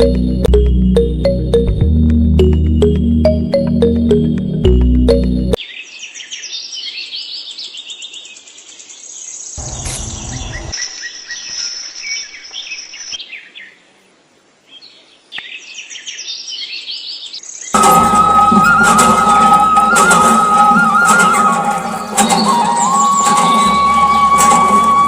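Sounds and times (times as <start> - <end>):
small birds chirping: 5.6 - 17.8.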